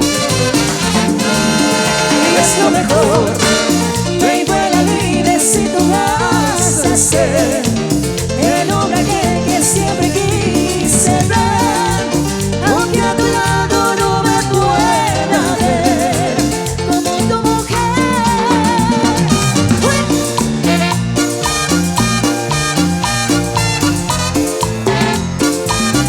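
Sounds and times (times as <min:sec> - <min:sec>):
latin dance band music: 0:00.0 - 0:26.0.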